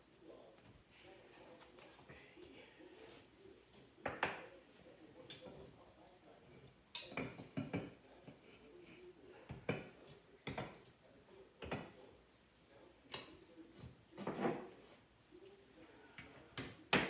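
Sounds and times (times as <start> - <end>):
kitchen items knocking and clattering: 7.0 - 8.5.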